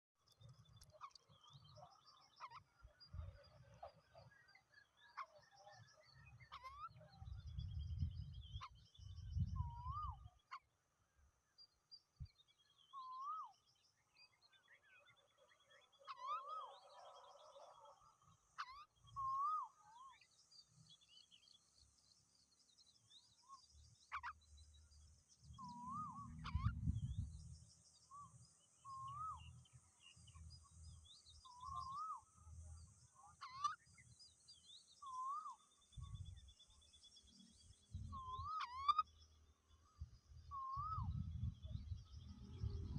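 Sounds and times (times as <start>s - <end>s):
wavering whistled bird call: 18.6s - 20.3s, 25.6s - 27.4s, 28.1s - 29.6s, 35.0s - 36.4s, 40.4s - 41.9s.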